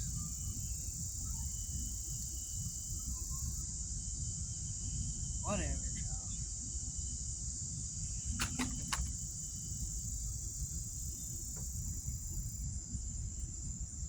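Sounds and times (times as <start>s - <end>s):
insect chorus: 0.0s - 14.0s
sharp clicks: 8.4s - 9.3s.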